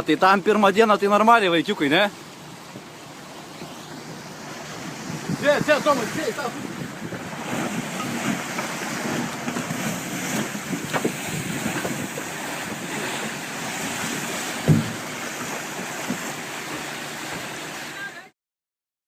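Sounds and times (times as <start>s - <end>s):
water washing around boat: 0.0s - 18.3s
wind buffeting microphone: 3.6s - 16.4s
dull thump: 14.6s - 17.5s.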